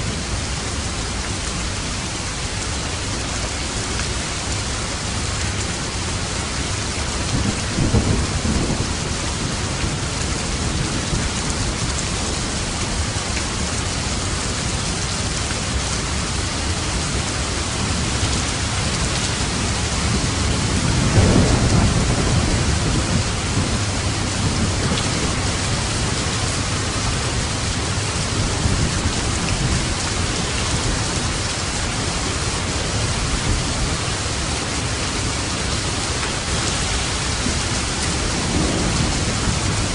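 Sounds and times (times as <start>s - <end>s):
heavy rain: 0.0s - 39.9s
thunder rumbling: 7.1s - 13.0s, 17.2s - 39.9s.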